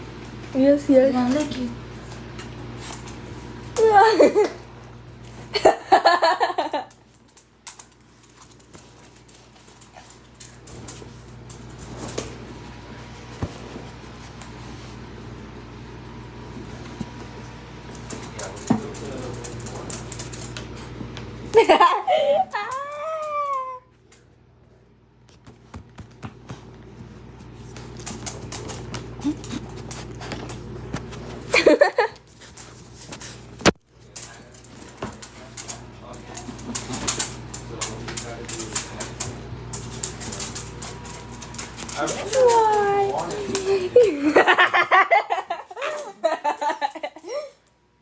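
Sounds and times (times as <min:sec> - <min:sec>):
dog clicks and taps: 0:07.3 - 0:12.3, 0:17.9 - 0:21.3, 0:25.3 - 0:27.1, 0:32.5 - 0:43.6.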